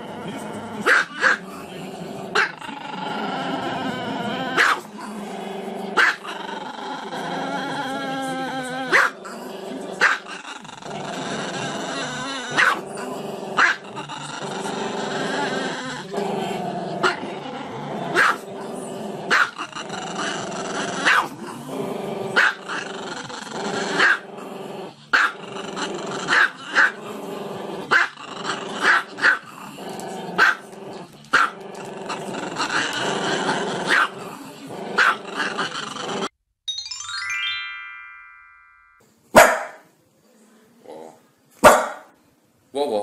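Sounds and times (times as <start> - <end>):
dog barking and yipping: 4.6 - 4.8, 6.0 - 6.2, 8.9 - 9.2, 12.6 - 12.8, 13.6 - 13.8, 18.2 - 18.4, 19.3 - 19.6, 21.0 - 21.3, 22.4 - 22.6, 24.0 - 24.2, 28.8 - 29.4, 33.9 - 34.1, 35.0 - 35.2, 39.4 - 39.8, 41.6 - 42.1.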